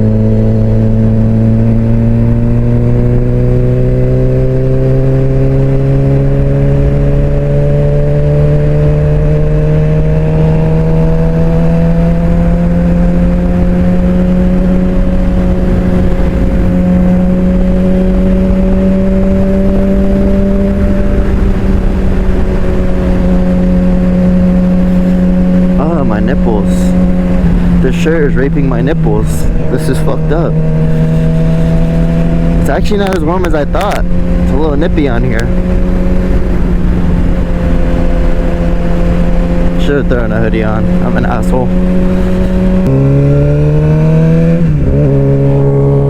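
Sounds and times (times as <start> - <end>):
motorcycle engine cruising: 0.0 - 46.0
wind noise rumble: 0.0 - 46.0.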